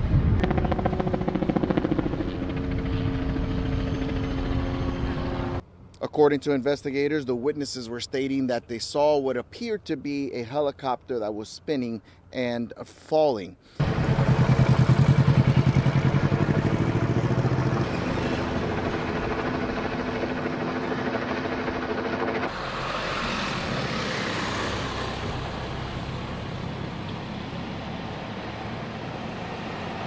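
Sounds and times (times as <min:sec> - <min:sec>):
helicopter rotor chop: 0:00.0 - 0:05.6, 0:13.8 - 0:30.0
steady engine and traffic noise: 0:00.0 - 0:06.0, 0:13.7 - 0:30.0.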